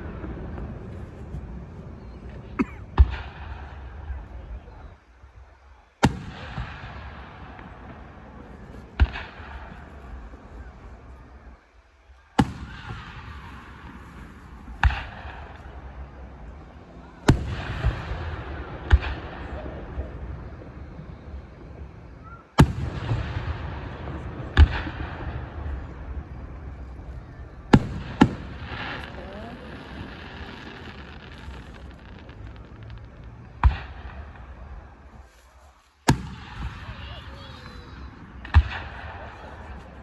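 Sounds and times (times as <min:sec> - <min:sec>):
fireworks bangs: 0:00.0 - 0:40.0.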